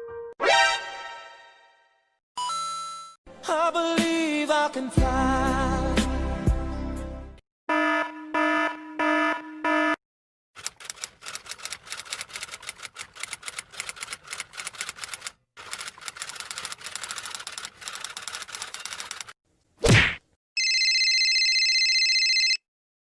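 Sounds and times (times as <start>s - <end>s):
alarm beeping: 7.7s - 10.0s
typewriter keys clattering: 10.6s - 19.4s.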